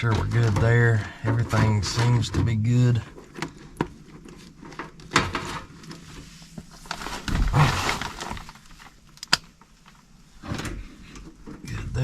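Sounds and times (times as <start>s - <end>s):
rustling and scraping of wiring: 0.0s - 12.0s.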